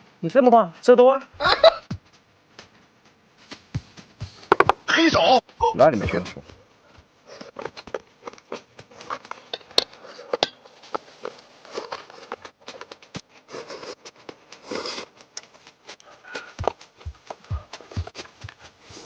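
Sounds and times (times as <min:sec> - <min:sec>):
chewing: 0:07.3 - 0:10.4, 0:11.1 - 0:18.7
slurping: 0:13.5 - 0:15.2.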